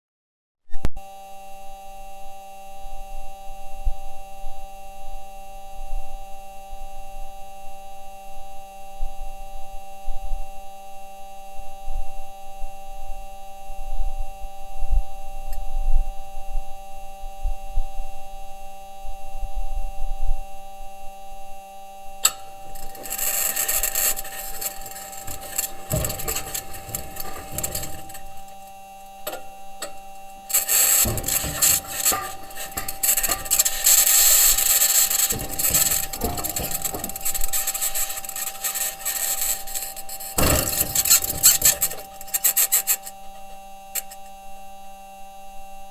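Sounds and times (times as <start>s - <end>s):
wheels knocking and clunking: 22.2s - 44.2s
high-pitched scraping and rattling: 22.2s - 44.3s
steady hum: 22.2s - 44.3s.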